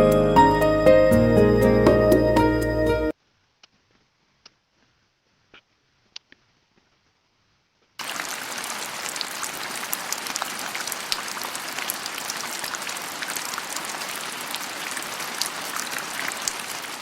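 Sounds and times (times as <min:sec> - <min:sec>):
falling water splashing: 0:08.0 - 0:17.0.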